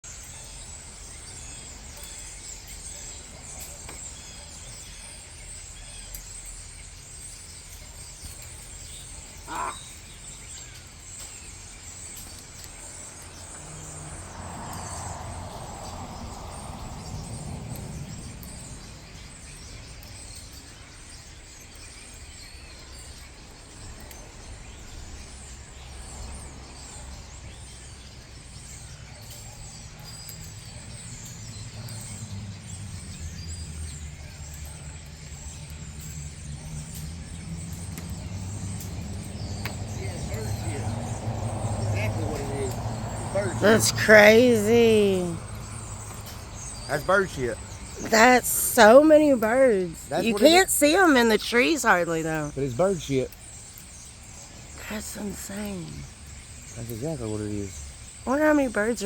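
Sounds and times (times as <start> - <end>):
flock of birds calling: 0.1 - 59.0.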